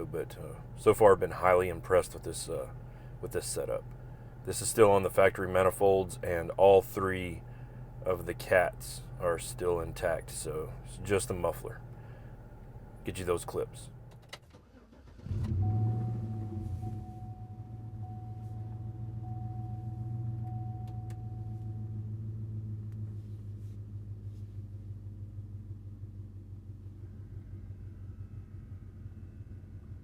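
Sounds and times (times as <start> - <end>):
car engine exhaust note: 15.2 - 30.0
faint high tone: 15.6 - 21.9.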